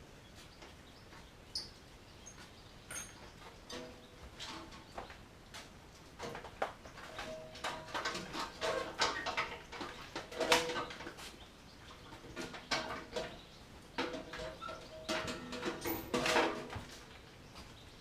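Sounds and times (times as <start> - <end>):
hand tools clinking on metal: 2.9 - 4.6, 7.1 - 11.1, 14.0 - 16.8.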